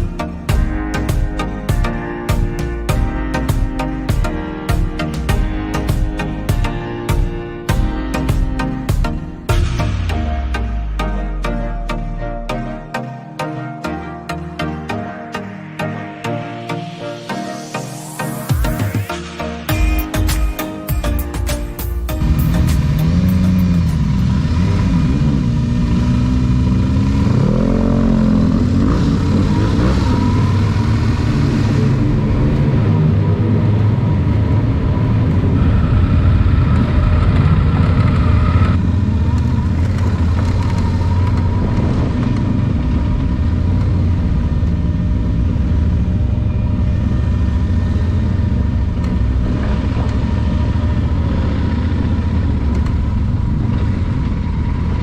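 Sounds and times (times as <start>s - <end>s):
motorcycle engine running: 22.1s - 55.0s
road and wind noise: 22.2s - 55.0s.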